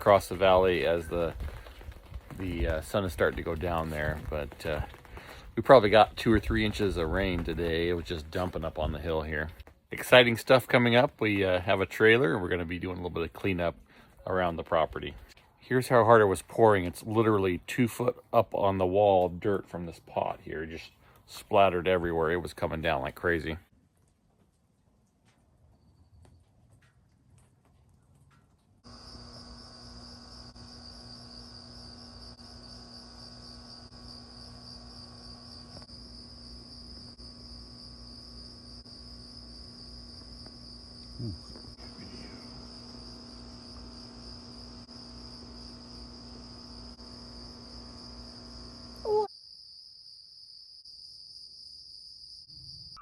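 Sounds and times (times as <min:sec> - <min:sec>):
crickets chirping: 0:28.8 - 0:53.0.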